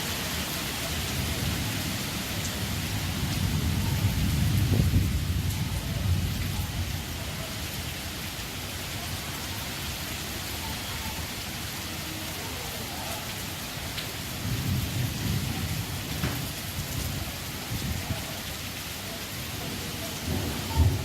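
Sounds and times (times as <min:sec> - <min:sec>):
heavy rain hissing: 0:00.0 - 0:21.0
wind gusts rumbling: 0:01.3 - 0:07.4, 0:20.2 - 0:21.0.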